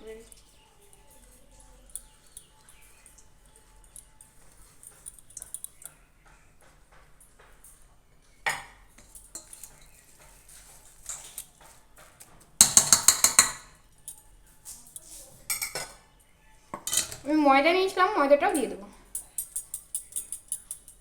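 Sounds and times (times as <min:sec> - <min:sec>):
spoon clinking against a bowl: 0:08.5 - 0:11.5, 0:12.6 - 0:14.2, 0:15.0 - 0:16.0, 0:16.8 - 0:17.3, 0:19.1 - 0:21.0.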